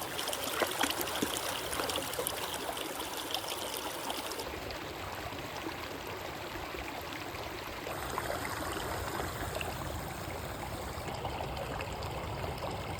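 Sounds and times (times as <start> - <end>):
river water rushing: 7.2 - 12.9.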